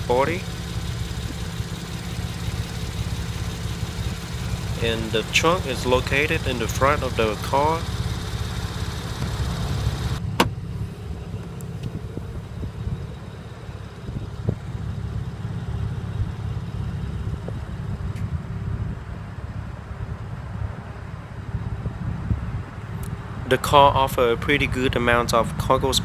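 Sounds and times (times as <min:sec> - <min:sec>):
car engine idling: 0:00.0 - 0:18.0, 0:22.8 - 0:26.0.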